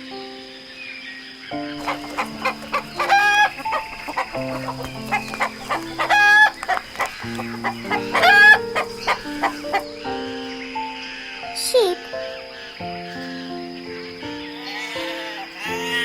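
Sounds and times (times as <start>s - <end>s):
background music: 0.0s - 16.0s
chicken clucking: 1.8s - 10.0s.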